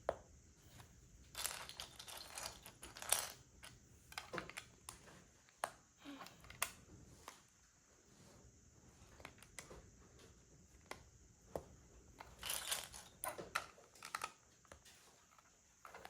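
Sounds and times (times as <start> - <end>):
plastic pieces clicking: 0.7 - 6.8, 12.2 - 16.0.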